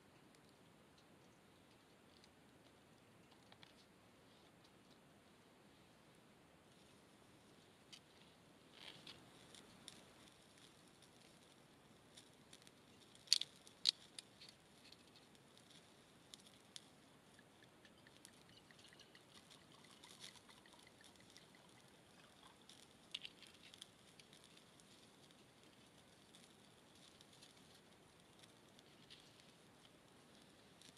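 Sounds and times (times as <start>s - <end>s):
wine pouring into metal cup: 18.0s - 22.5s.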